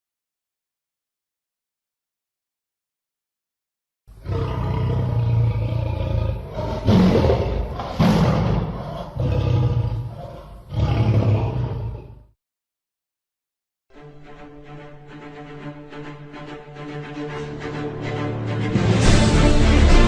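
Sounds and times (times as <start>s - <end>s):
lion roaring: 4.2s - 12.4s.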